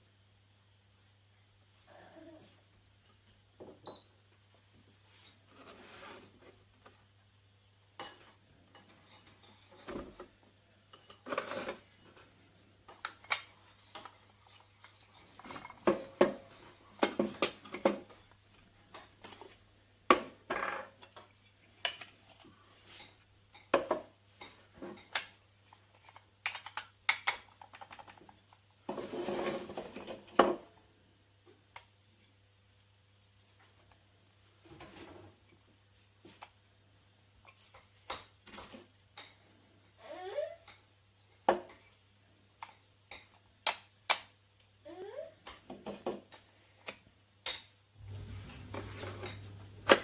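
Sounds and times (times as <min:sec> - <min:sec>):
rubbing or rustling: 0:05.5 - 0:06.6.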